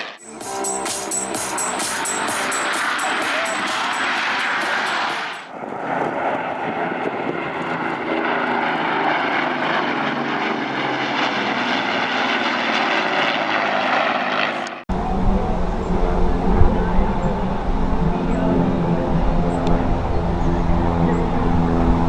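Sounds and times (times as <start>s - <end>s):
airplane engine droning: 5.6s - 14.2s, 14.9s - 22.0s.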